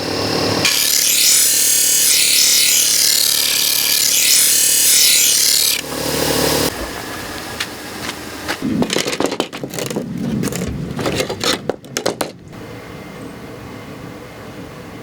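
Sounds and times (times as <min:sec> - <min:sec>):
metal tools scraping and clattering: 0:06.7 - 0:12.5.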